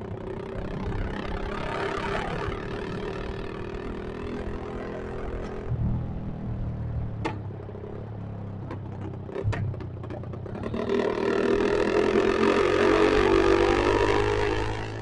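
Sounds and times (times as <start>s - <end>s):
motorcycle engine running and revving: 0.0s - 15.0s
exhaust pops: 8.5s - 10.7s.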